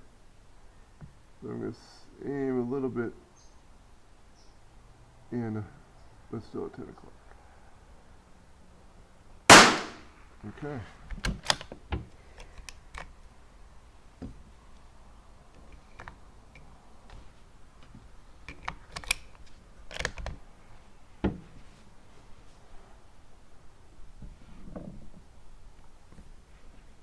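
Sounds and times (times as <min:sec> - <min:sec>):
rifle bolt metallic clicks: 0:09.5 - 0:10.0, 0:11.3 - 0:11.7, 0:18.5 - 0:19.3, 0:19.9 - 0:20.3.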